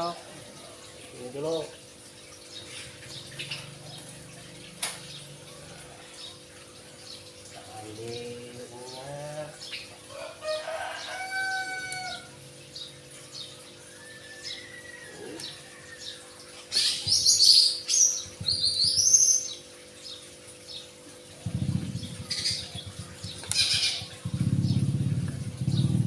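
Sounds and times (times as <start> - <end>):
low engine rumble: 21.3 - 26.0.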